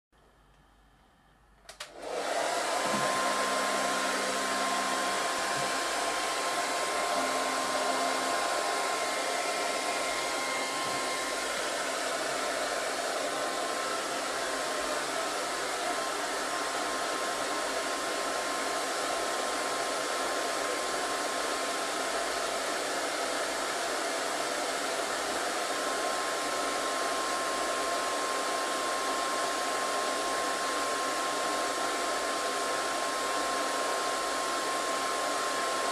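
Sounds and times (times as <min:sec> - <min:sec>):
electric air blower running: 0:01.8 - 0:22.7.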